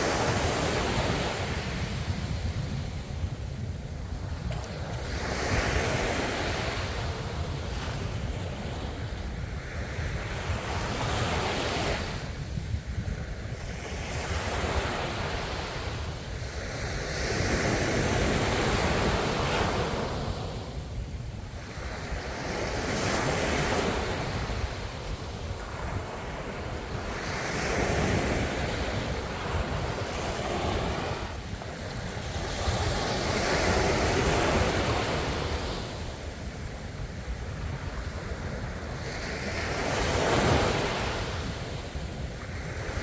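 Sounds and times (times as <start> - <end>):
sea waves breaking on shore: 13.2 - 43.0.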